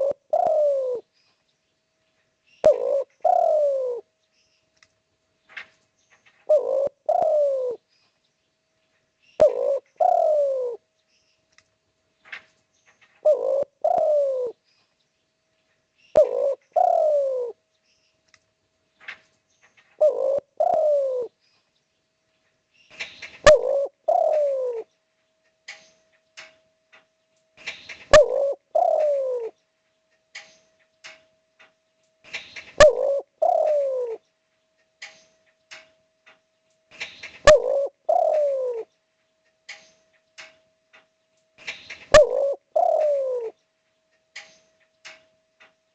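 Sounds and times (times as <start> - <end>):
dove cooing: 0.0 - 1.1, 2.6 - 4.1, 6.4 - 7.9, 9.4 - 10.8, 13.2 - 14.6, 16.1 - 17.6, 20.0 - 21.4, 23.3 - 24.9, 27.9 - 29.6, 32.6 - 34.2, 37.3 - 38.9, 41.9 - 43.6.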